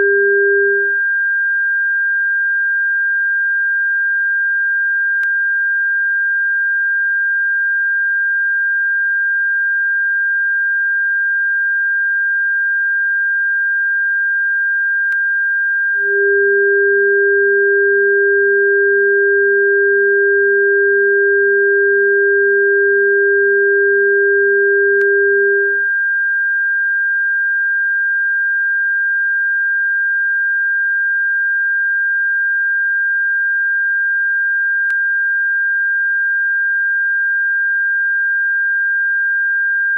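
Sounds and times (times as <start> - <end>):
lower tone: 0.0 - 1.0, 16.0 - 25.9
high-pitched sine tone: 0.0 - 39.9.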